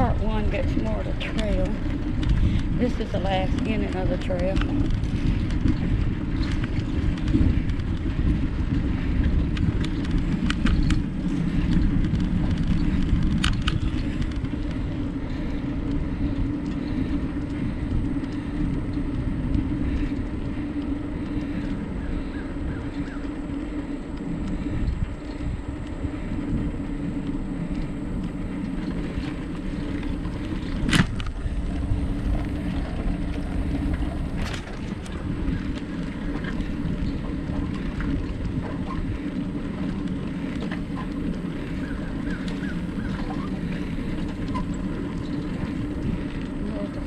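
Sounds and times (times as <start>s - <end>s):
bicycle tyre rumble: 0.0s - 47.0s
wind on microphone: 0.0s - 47.0s.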